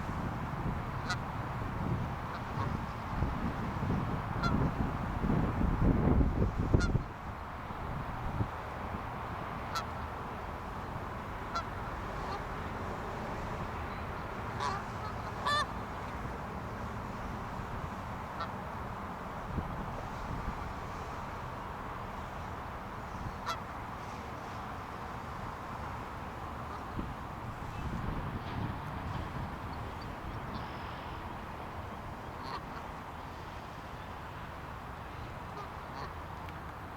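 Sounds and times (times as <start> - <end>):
geese honking: 0.9 - 1.2, 9.7 - 10.0, 11.4 - 12.5, 14.5 - 15.8, 23.2 - 23.8, 32.3 - 32.9, 35.6 - 36.2
waterfowl calls: 0.9 - 1.3, 4.4 - 4.7, 9.7 - 10.0, 11.4 - 12.5, 14.5 - 15.8, 18.3 - 18.6, 23.1 - 24.6, 26.6 - 27.1, 32.2 - 33.0, 35.5 - 36.2.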